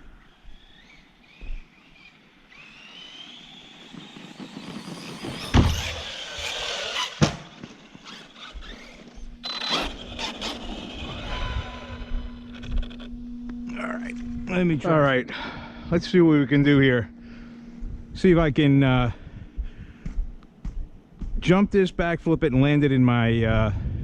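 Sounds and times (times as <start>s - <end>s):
rc truck motor whining: 0.0s - 14.7s
loud thuds: 5.2s - 9.3s.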